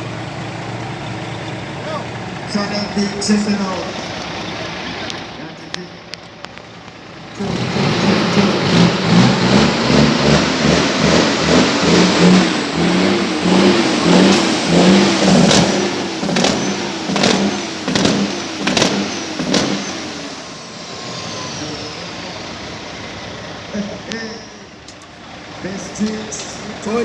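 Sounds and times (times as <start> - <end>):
truck engine revving: 0.0 - 27.0
sharp cracks: 13.5 - 20.0.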